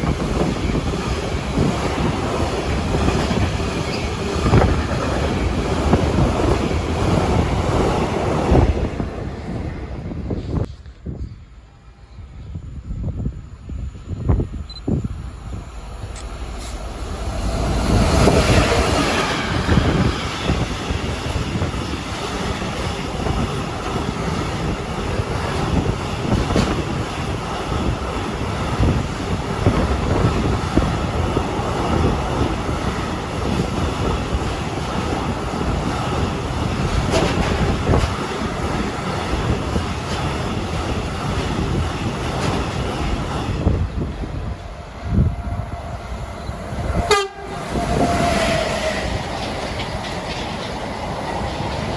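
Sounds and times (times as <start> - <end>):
train wheels clattering: 16.0 - 43.9, 47.1 - 51.9.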